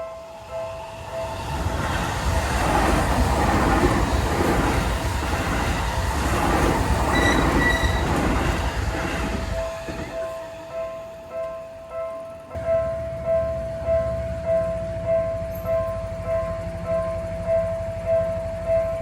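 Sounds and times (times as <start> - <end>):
train rumbling past: 0.0 - 19.0
high squeal: 5.0 - 11.2
crossing bell dinging: 6.7 - 19.0.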